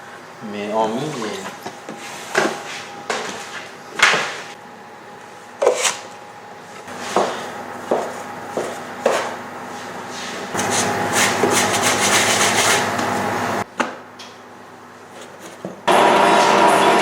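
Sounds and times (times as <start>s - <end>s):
dough rubbing and scraping: 5.6s - 13.1s.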